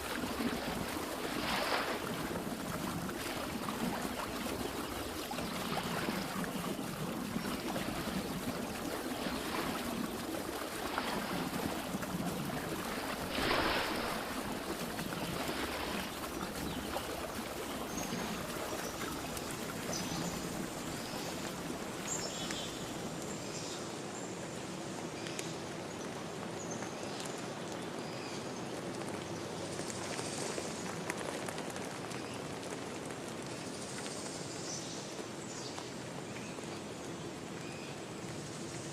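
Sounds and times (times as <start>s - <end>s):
water splashing: 0.0s - 23.6s
river stream running: 0.0s - 25.0s.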